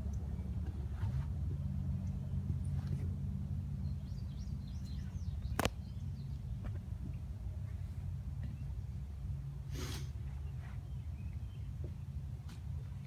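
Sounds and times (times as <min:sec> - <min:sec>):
faint birds chirping: 0:00.0 - 0:13.0
sharp click: 0:05.6 - 0:05.8.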